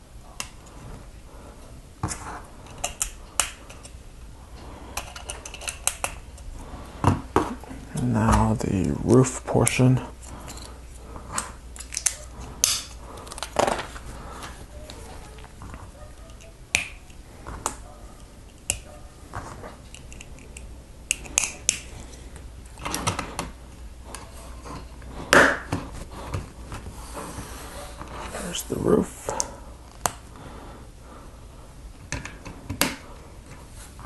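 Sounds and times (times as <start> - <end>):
plastic bricks clicking: 5.0 - 6.2.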